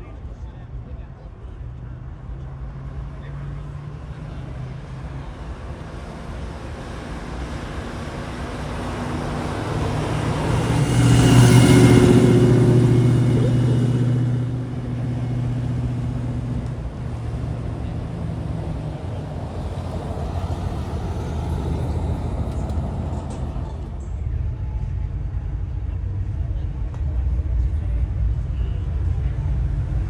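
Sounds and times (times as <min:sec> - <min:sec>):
car engine driving past: 0:03.0 - 0:24.4.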